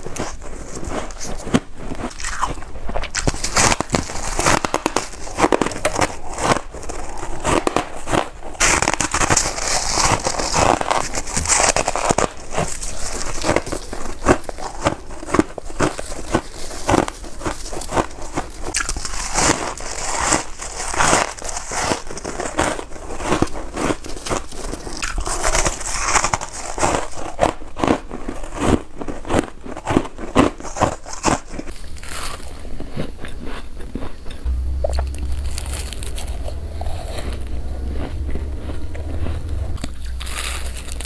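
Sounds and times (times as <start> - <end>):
frost crunching being chewed: 0.0 - 41.0
low hum: 34.4 - 41.0.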